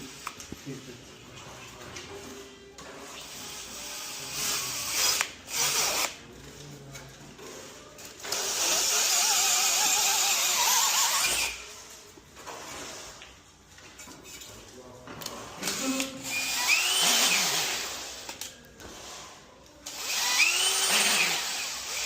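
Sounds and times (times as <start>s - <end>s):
power tool whining: 19.9s - 22.0s.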